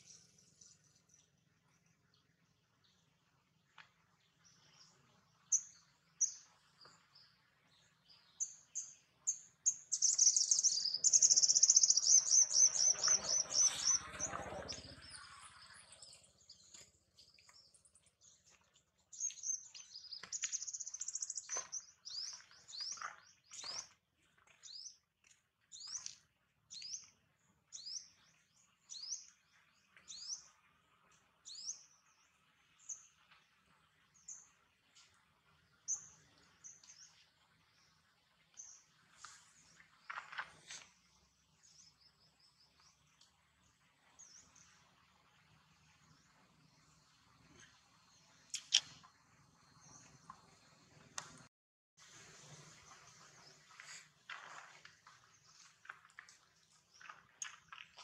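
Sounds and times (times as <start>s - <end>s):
songbird chirping: 0.0s - 51.5s, 52.6s - 58.0s.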